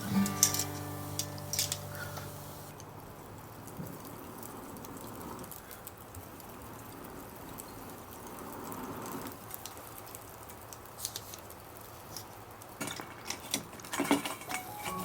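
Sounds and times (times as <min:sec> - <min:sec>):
bonfire crackling and popping: 0:00.0 - 0:15.0
low steady hiss: 0:00.0 - 0:15.0
clinks and knocks: 0:12.8 - 0:15.0.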